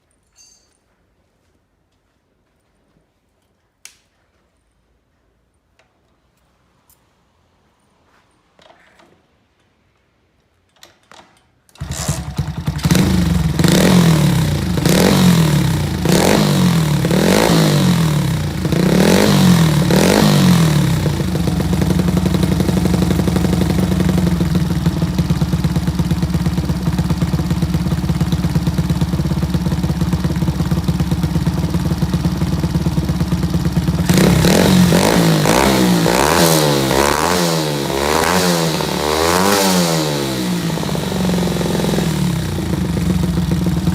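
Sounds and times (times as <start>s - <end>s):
motorcycle engine revving and idling: 11.8s - 43.9s.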